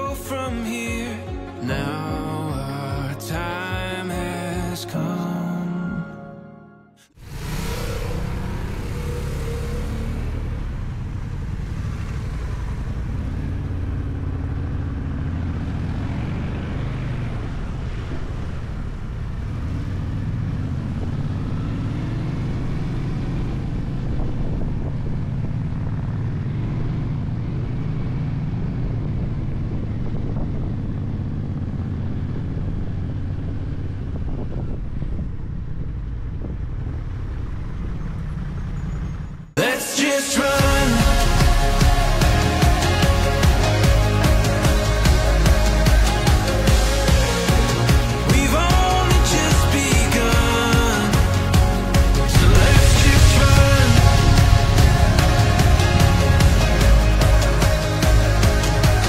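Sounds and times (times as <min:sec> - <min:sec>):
wind rushing over microphone: 0:07.2 - 0:14.3, 0:15.2 - 0:26.7, 0:28.4 - 0:38.6, 0:51.6 - 0:59.0
motorcycle engine running: 0:07.3 - 0:39.6, 0:40.6 - 0:59.0.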